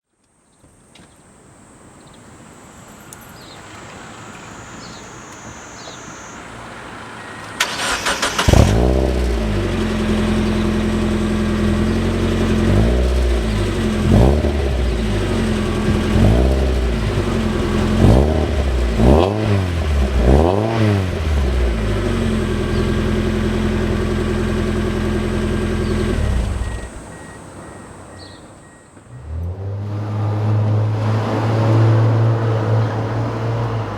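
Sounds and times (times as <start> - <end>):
engine throttle blips: 3.1 - 33.9
car engine idling: 3.4 - 29.8
engine starter cranking: 7.2 - 9.4.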